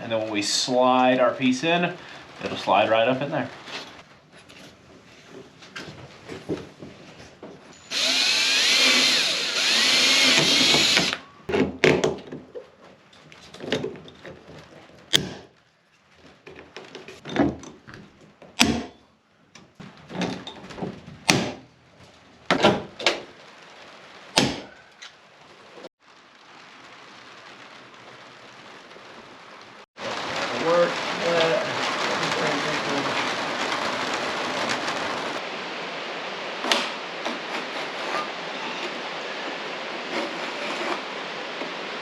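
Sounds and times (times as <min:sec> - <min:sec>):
power drill boring metal: 0:07.8 - 0:11.2.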